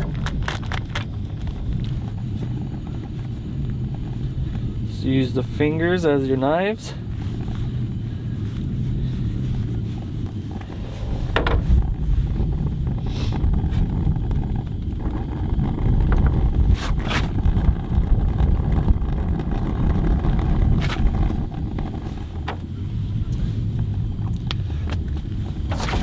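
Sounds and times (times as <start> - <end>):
wind buffeting microphone: 0.0 - 26.0
microphone handling knocks: 10.6 - 22.6.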